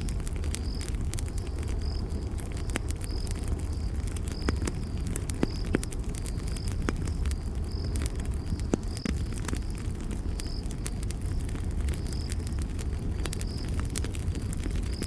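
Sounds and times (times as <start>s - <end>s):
campfire crackling and popping: 0.0s - 15.0s
cricket chirping: 0.0s - 15.0s.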